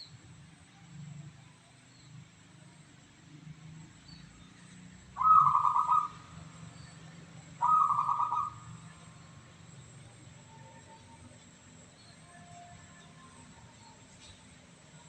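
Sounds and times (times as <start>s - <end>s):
dove cooing: 5.2s - 6.4s, 7.6s - 8.8s.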